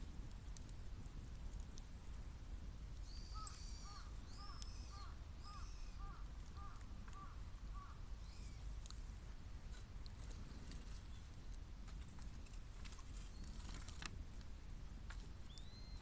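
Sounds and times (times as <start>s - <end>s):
bird chirping: 3.0s - 8.7s, 15.4s - 16.0s
crow cawing: 3.4s - 8.0s.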